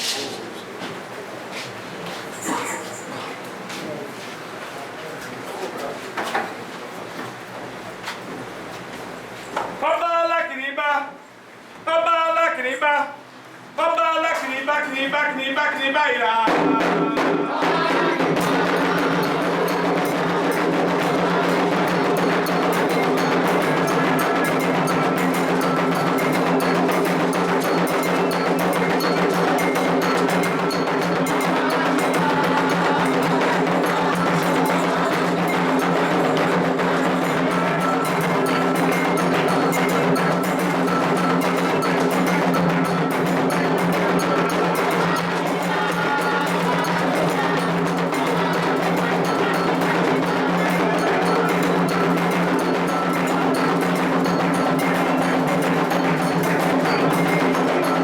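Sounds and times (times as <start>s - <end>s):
hand drums: 16.5s - 58.0s
struck bell: 18.4s - 58.0s.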